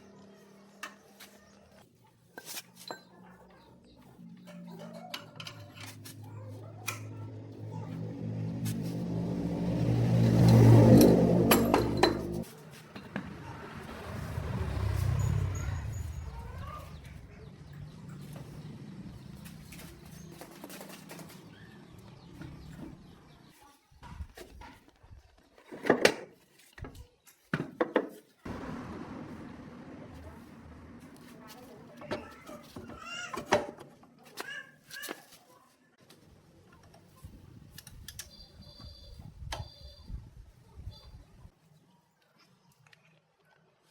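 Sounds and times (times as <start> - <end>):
low motor hum: 6.7 - 12.4, 13.3 - 23.4, 28.5 - 32.0
engine running: 6.9 - 23.4, 28.5 - 32.4
faint bird chirps: 38.2 - 41.4.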